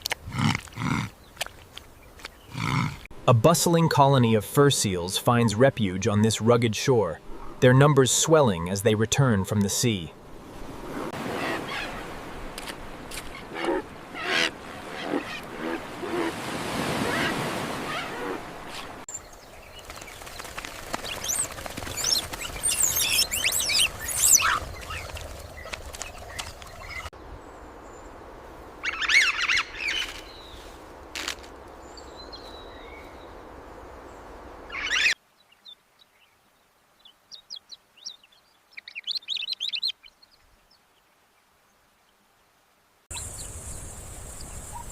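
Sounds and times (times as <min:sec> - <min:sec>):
birds chirping and calling: 0:13.1 - 0:18.4, 0:19.1 - 0:27.1, 0:34.7 - 0:35.2, 0:37.3 - 0:40.4.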